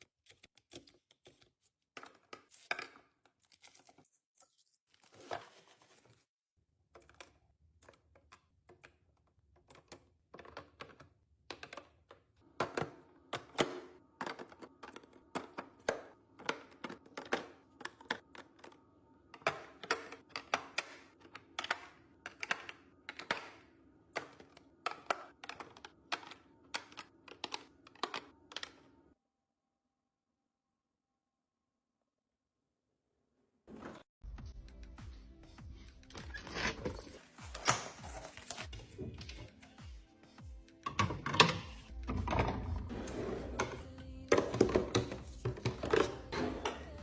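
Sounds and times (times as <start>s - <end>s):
kitchen containers clicking and knocking: 6.9s - 28.9s, 40.8s - 47.0s.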